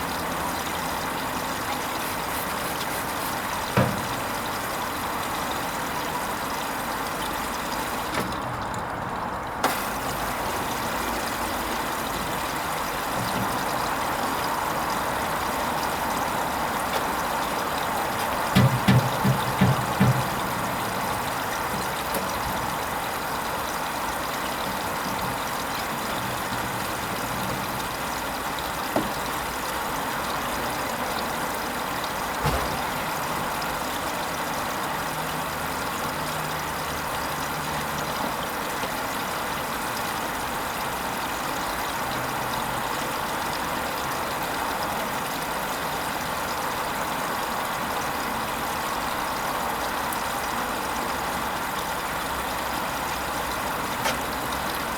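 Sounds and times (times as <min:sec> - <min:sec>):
washing machine motor hum: 0:00.0 - 0:44.7
dull knock: 0:02.7 - 0:04.4, 0:18.6 - 0:20.8, 0:29.0 - 0:29.2, 0:32.4 - 0:32.9.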